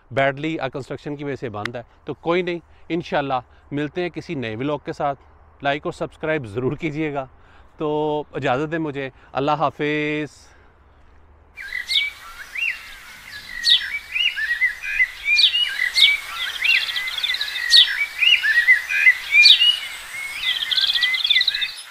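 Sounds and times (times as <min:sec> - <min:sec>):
small birds chirping and trilling: 0:11.6 - 0:21.9.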